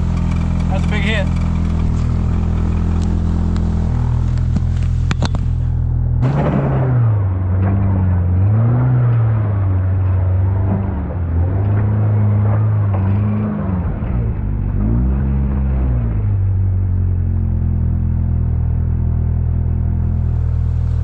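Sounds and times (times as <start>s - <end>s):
vehicle engine revving: 0.0s - 21.0s.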